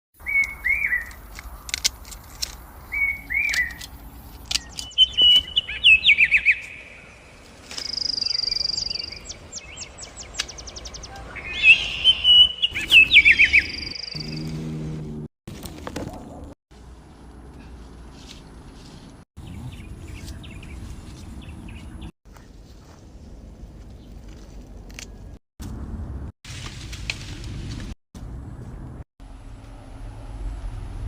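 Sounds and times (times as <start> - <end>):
songbirds chirping and calling: 0.2 - 14.6, 19.4 - 25.4.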